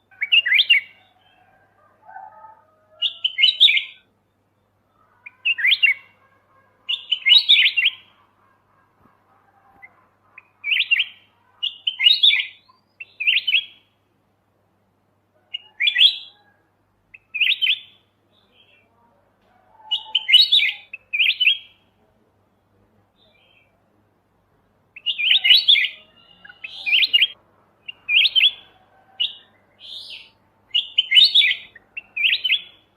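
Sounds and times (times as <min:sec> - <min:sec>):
bulbul chattering whistled song: 0:00.0 - 0:01.2, 0:03.0 - 0:06.2, 0:06.9 - 0:08.2, 0:09.7 - 0:13.8, 0:15.6 - 0:16.4, 0:17.1 - 0:18.0, 0:19.9 - 0:21.8, 0:25.0 - 0:32.9.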